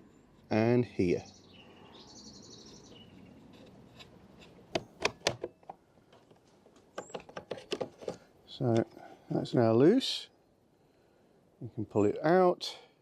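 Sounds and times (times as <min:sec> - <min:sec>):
screwdriver clicks and taps: 0:03.6 - 0:05.5.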